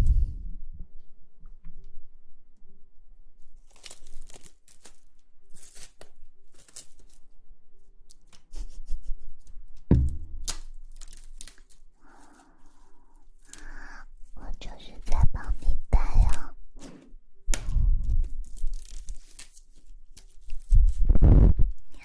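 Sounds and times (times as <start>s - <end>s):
crinkly material rustling: 3.4s - 8.3s, 10.6s - 15.8s, 18.0s - 22.0s
heavy thump: 9.9s - 10.5s.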